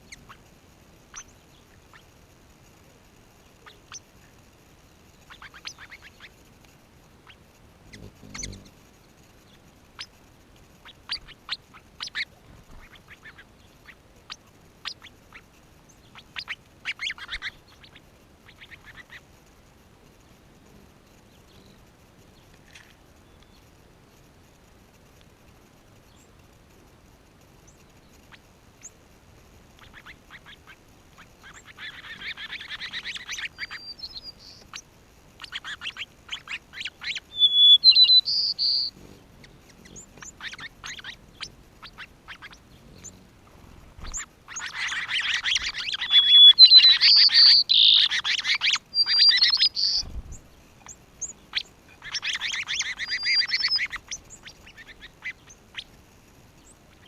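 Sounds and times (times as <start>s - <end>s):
birds calling and chattering: 0.0s - 23.8s, 29.7s - 57.0s
high whistled bird notes: 7.9s - 8.7s, 35.4s - 43.2s, 44.1s - 50.1s, 51.2s - 55.4s.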